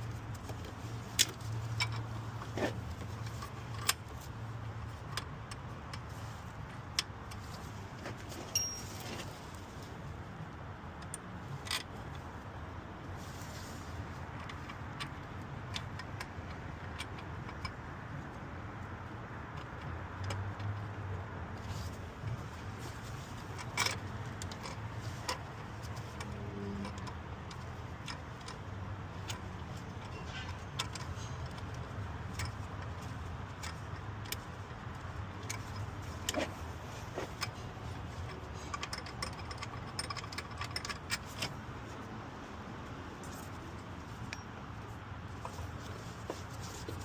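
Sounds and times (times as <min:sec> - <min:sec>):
metallic clicks of hand tools: 0:23.5 - 0:41.6.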